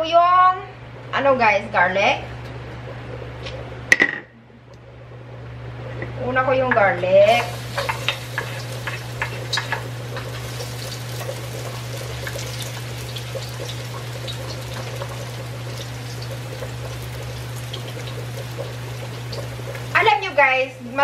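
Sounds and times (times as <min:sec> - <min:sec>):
steady low hum: 0:00.0 - 0:21.0
garlic sizzling in hot oil: 0:07.1 - 0:21.0.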